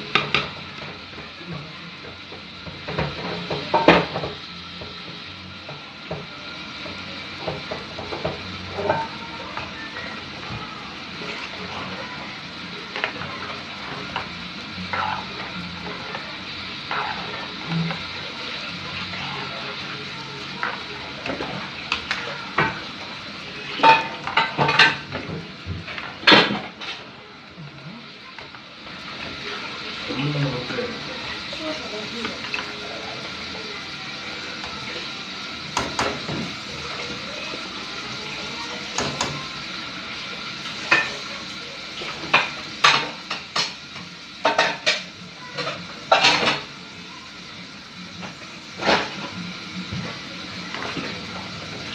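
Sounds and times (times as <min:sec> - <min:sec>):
utensil scraping a cooking pot: 0:12.9 - 0:19.8.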